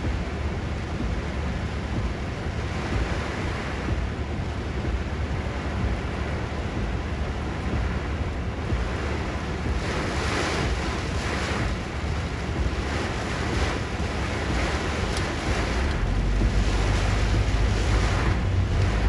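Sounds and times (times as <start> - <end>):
heavy rain: 0.0 - 19.0
wind buffeting microphone: 0.0 - 19.0.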